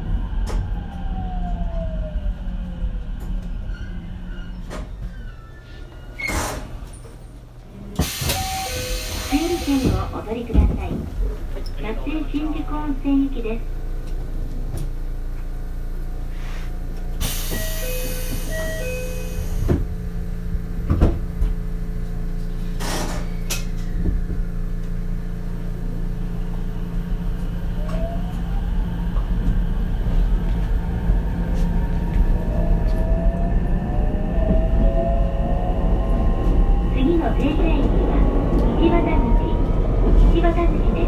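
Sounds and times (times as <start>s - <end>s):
loud air hiss: 8.0s - 10.1s.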